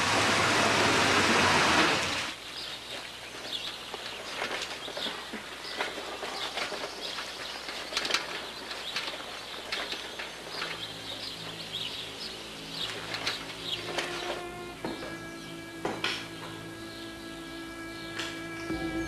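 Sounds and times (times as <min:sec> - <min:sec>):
birds chirping: 0:01.2 - 0:19.0
low sustained music chord: 0:10.5 - 0:19.0.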